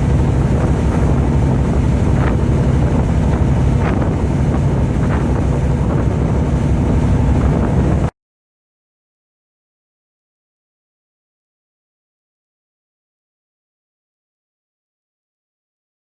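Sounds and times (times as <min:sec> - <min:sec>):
boat engine running: 0:00.0 - 0:08.1
wind buffeting microphone: 0:00.0 - 0:08.1.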